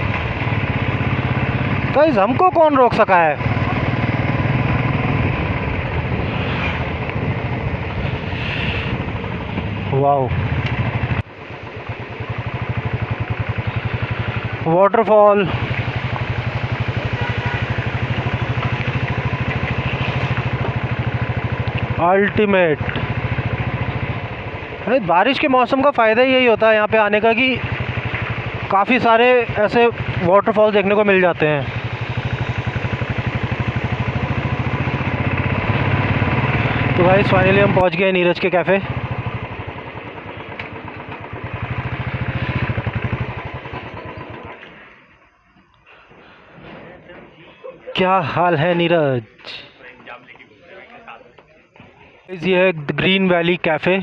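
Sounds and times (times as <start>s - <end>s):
motorcycle engine running: 0.0s - 45.6s
single-cylinder engine thumping: 37.6s - 44.8s.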